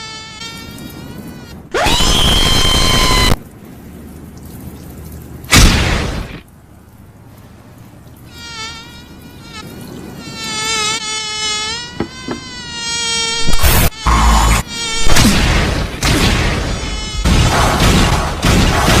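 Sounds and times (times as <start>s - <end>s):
fly buzzing: 0.0s - 3.4s, 8.2s - 15.3s, 16.6s - 17.3s.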